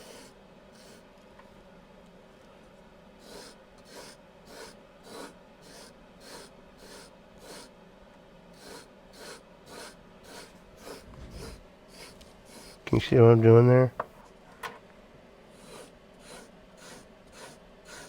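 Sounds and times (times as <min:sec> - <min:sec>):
knife rasping on sharpener: 0:03.3 - 0:07.7, 0:08.6 - 0:12.8, 0:15.6 - 0:18.0.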